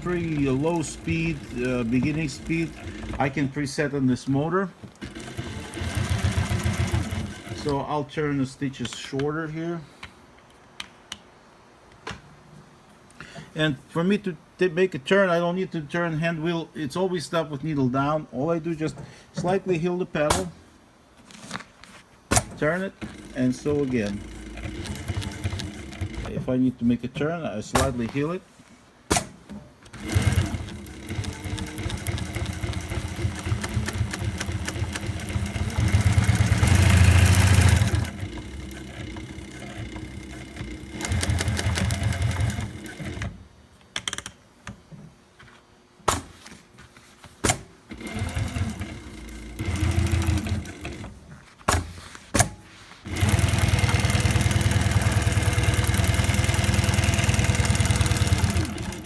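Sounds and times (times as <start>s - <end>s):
sewing machine stitching: 0.0s - 4.3s, 4.9s - 7.9s, 22.4s - 26.5s, 29.9s - 43.4s, 47.9s - 51.2s, 53.0s - 59.0s.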